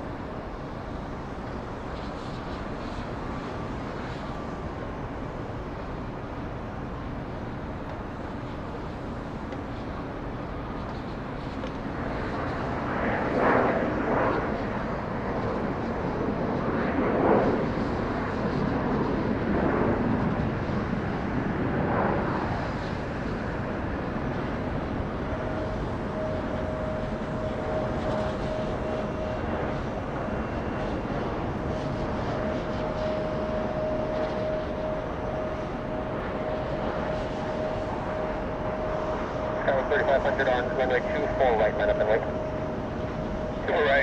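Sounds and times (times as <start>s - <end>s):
jet engine whine: 0.0s - 44.0s
jet engines rushing: 0.0s - 44.0s.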